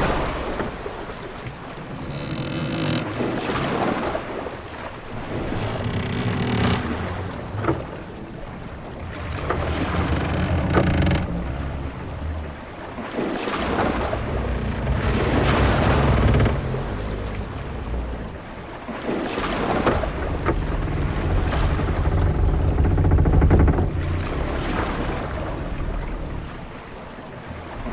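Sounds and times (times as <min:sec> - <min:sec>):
knocks and creaks: 0:00.0 - 0:27.9
waves washing against hull: 0:00.0 - 0:27.9
low rumble: 0:05.2 - 0:13.0, 0:13.6 - 0:18.7, 0:19.7 - 0:26.9.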